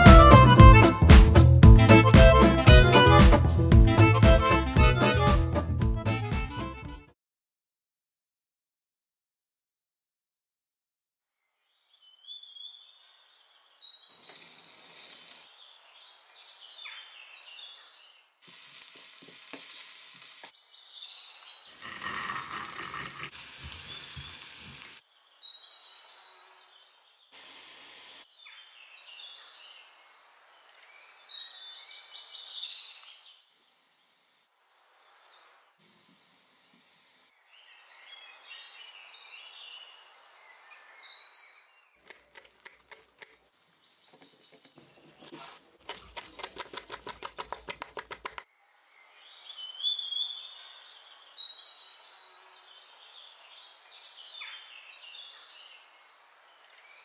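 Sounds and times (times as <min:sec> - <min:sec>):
food sizzling in oil: 0:18.4 - 0:20.5, 0:21.8 - 0:25.0.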